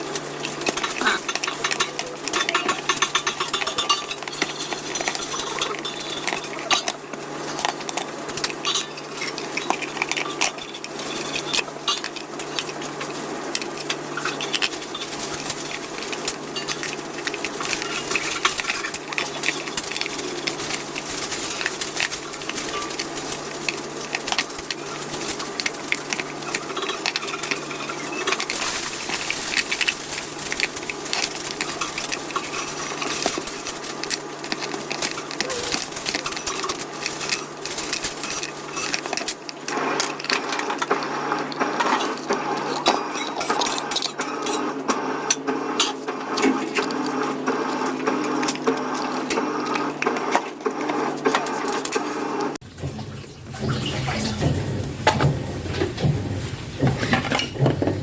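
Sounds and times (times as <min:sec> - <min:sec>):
small parts and tools clinking: 0:00.5 - 0:07.0, 0:13.6 - 0:41.0.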